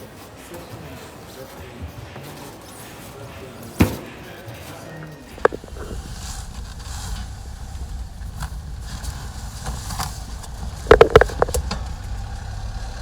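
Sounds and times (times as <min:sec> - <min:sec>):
vehicle engine rumbling: 0:05.1 - 0:13.0
sharp knocks and clatter: 0:05.3 - 0:12.4.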